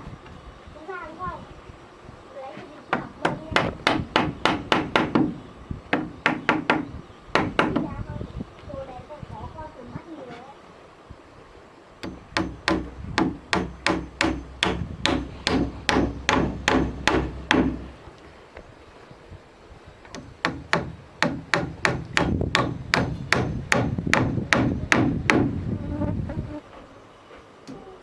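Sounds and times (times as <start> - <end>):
hammer striking wood: 2.9 - 7.9, 12.0 - 18.1, 20.1 - 25.6.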